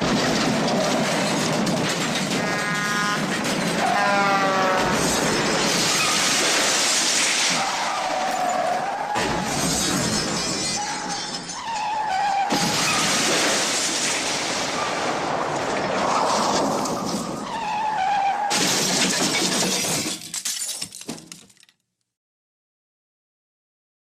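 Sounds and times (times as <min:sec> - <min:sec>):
glass shattering crash: 0:00.0 - 0:02.7, 0:04.8 - 0:17.5, 0:18.5 - 0:21.7.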